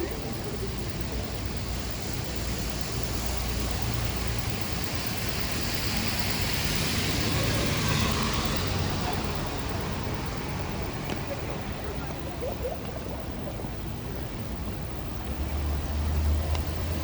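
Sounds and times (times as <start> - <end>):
rain hiss: 0.0 - 12.0
car passing on wet road: 1.8 - 11.0.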